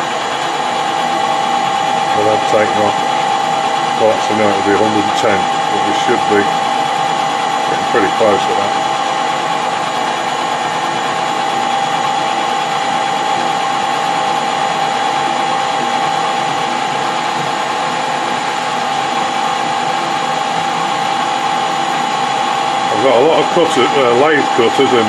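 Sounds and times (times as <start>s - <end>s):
metal lathe gear whine: 0.0s - 25.0s.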